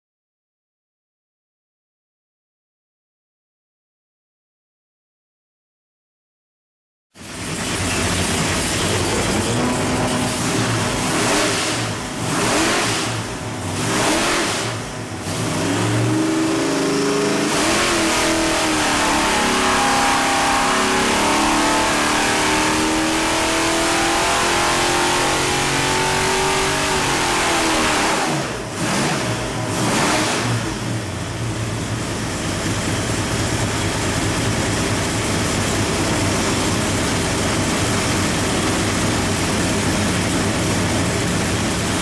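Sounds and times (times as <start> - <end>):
engine revving on dyno: 7.2 - 31.5.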